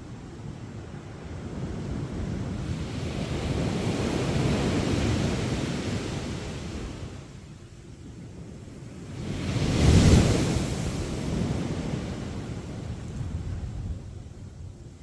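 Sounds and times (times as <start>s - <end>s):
wind buffeting microphone: 0.0s - 15.0s
sea waves breaking on beach: 9.1s - 13.0s.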